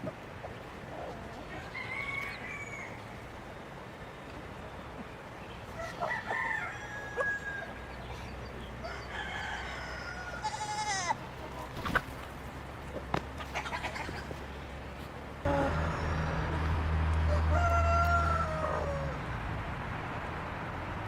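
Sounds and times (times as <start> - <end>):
chickens calling: 0.0 - 19.4
rooster crowing: 1.6 - 3.0, 5.8 - 7.8, 8.8 - 10.8, 15.5 - 19.3.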